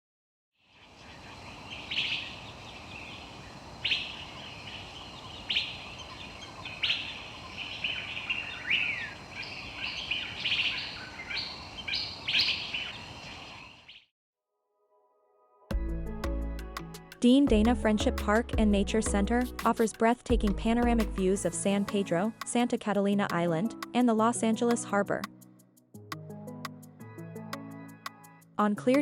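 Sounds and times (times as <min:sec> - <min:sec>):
wild birds calling and chirping: 0:00.6 - 0:14.1
steady background hiss: 0:00.7 - 0:13.8.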